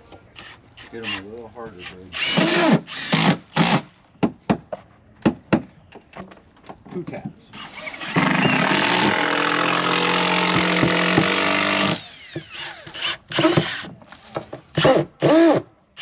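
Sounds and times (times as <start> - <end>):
power drill driving screws: 2.1 - 3.9, 7.6 - 15.6.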